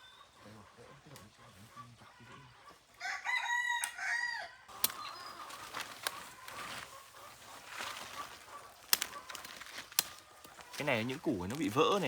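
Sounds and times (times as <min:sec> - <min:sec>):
rooster crowing: 0:03.0 - 0:04.7
sharp clicks: 0:04.8 - 0:05.1
faint rustling: 0:05.3 - 0:12.0.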